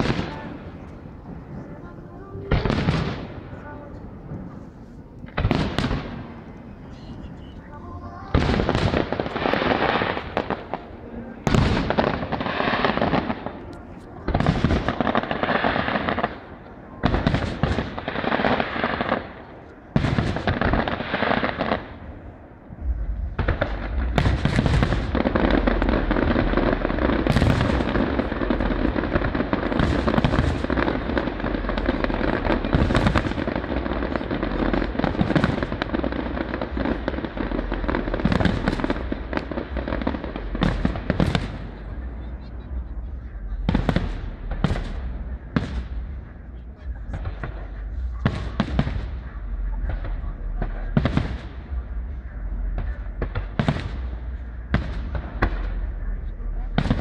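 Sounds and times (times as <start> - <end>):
deep rumble: 0.0 - 57.0
fireworks bursting: 0.0 - 57.0.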